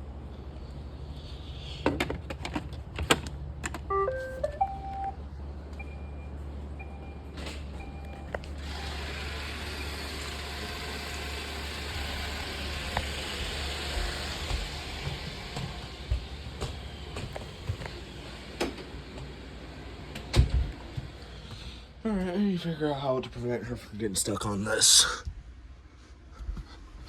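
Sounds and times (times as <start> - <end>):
rising tune of beeps: 3.9 - 5.2
robot vacuum motor running: 8.6 - 15.8.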